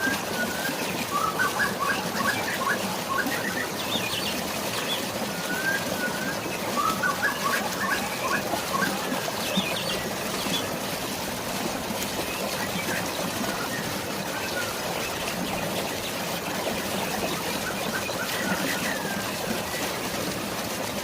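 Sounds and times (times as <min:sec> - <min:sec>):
rushing falling water: 0:00.0 - 0:21.0
songbird singing: 0:00.2 - 0:10.8.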